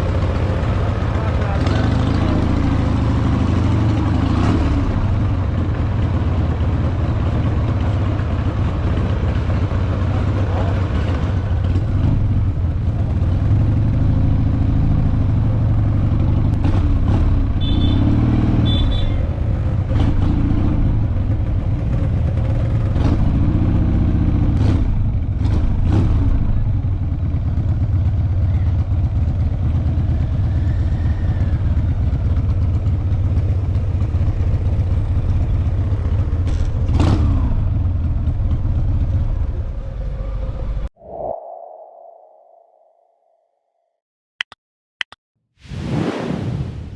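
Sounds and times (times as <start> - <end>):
motorcycle engines rumbling: 0.0 - 40.9
sharp clicks: 44.4 - 45.2.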